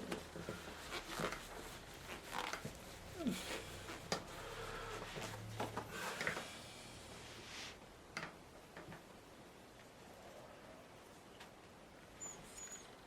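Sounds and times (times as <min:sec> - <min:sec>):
paintbrush scratchy strokes: 0:00.0 - 0:05.5
falling squeak: 0:12.2 - 0:13.0.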